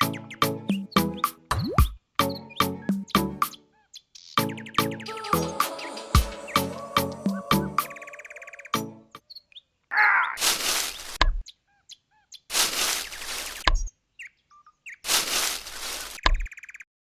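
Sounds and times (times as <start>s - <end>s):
birds chirping: 0.0s - 1.5s, 2.2s - 16.9s
bursts of hissing: 10.4s - 11.2s, 12.5s - 13.6s, 15.1s - 16.2s.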